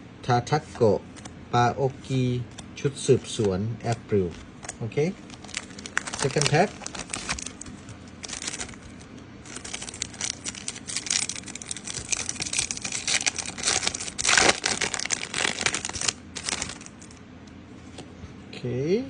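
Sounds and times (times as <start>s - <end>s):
foil wrapper crinkling: 5.1s - 17.2s.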